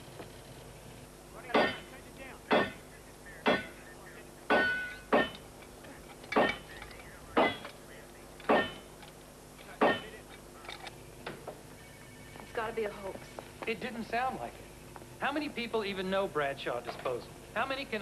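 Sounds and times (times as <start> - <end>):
steady low hum: 0.0 - 18.0
sharp ringing knocks: 1.5 - 2.8, 3.5 - 3.8, 4.5 - 5.5, 6.3 - 7.7, 8.4 - 9.0, 9.8 - 10.2.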